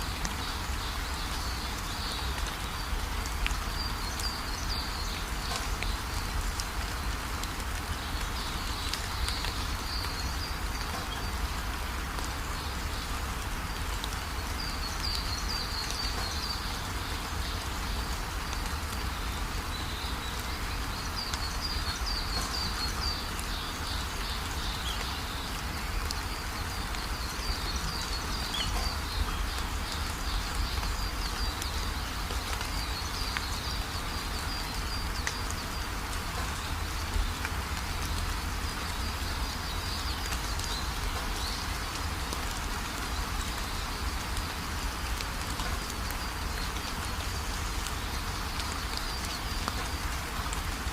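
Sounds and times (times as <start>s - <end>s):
heavy rain: 0.0s - 50.9s.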